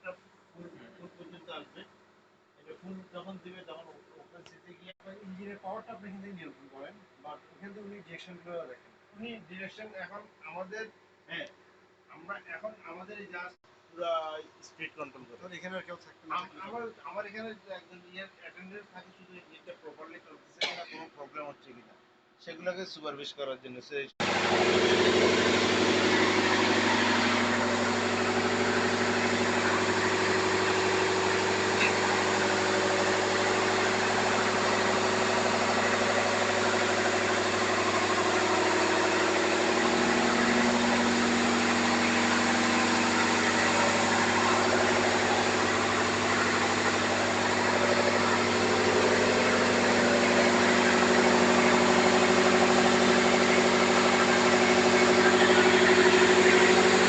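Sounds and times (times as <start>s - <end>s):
diesel machinery running: 24.2s - 57.0s.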